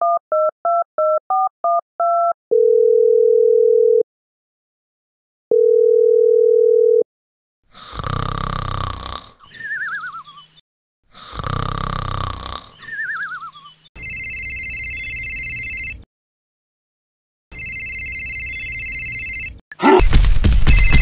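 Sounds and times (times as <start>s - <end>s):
steady phone tone: 2.5s - 4.0s, 5.5s - 7.0s
cartoon snoring sound effect: 7.7s - 10.4s, 11.1s - 13.7s, 19.8s - 20.1s.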